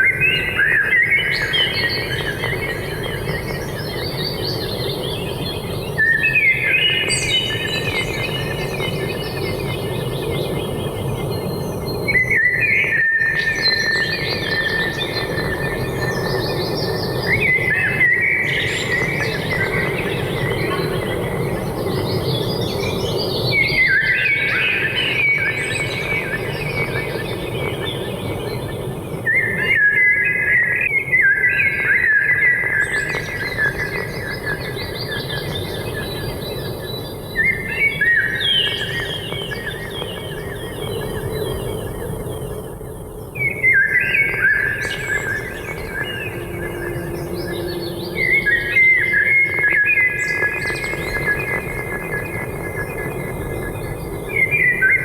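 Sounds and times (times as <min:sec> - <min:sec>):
low background hum: 0:00.0 - 0:55.0
bird chirping: 0:43.4 - 0:55.0.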